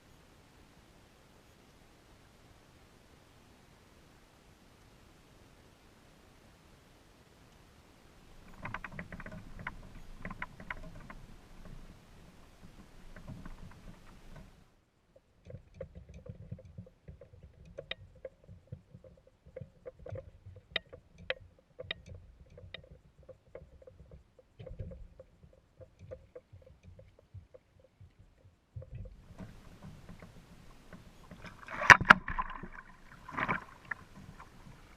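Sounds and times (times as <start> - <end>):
kayak gear clicks and knocks: 8.4 - 14.6, 15.2 - 34.9
low water thumps: 15.4 - 34.9.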